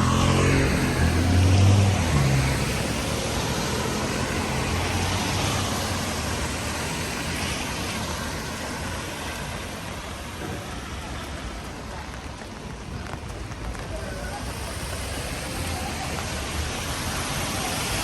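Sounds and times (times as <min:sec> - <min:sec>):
vehicle driving away: 0:00.0 - 0:06.7
steady rain: 0:00.0 - 0:18.0.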